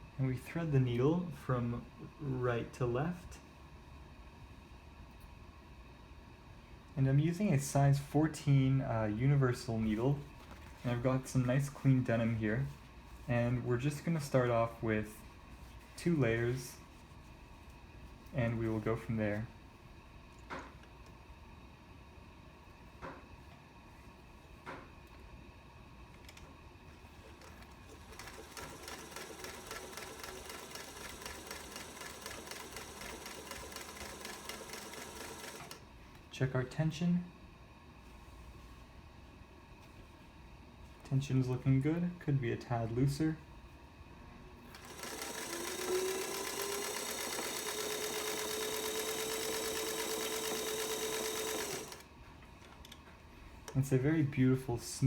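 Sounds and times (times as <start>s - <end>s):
sewing machine stitching: 27.3s - 35.8s, 44.7s - 52.0s.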